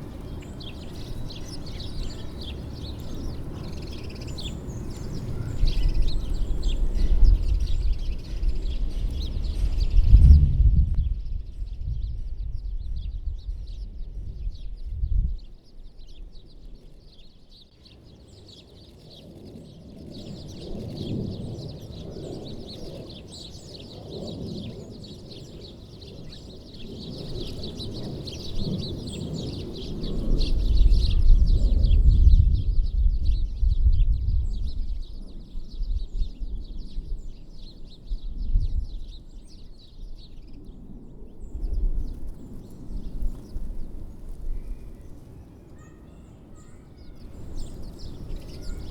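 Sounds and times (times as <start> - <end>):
songbirds chirping and twittering: 0.0 - 48.9
low rumble: 7.2 - 15.4.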